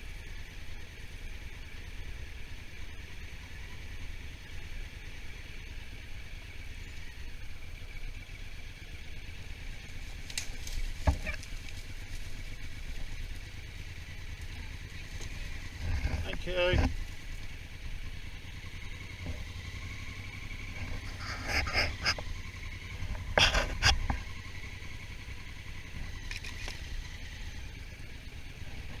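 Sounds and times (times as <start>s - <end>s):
low motorcycle rumble: 0.0s - 29.0s
wind and road rush: 9.9s - 27.7s.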